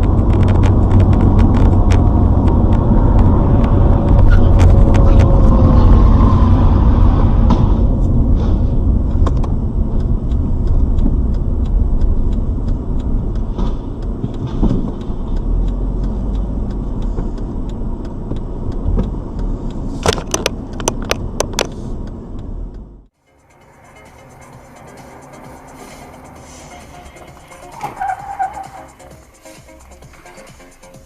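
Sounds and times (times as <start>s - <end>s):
sharp knocks or clicks: 0.0s - 5.6s, 9.1s - 22.5s
car road and engine rumble: 0.0s - 31.0s.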